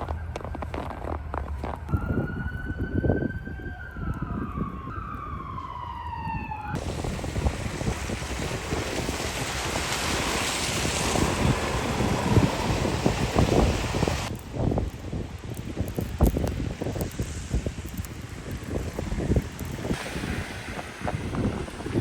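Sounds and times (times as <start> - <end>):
footsteps crunching in snow: 0.0 - 3.2
vehicle siren wailing: 0.0 - 7.6
wind hiss on microphone: 6.8 - 22.0.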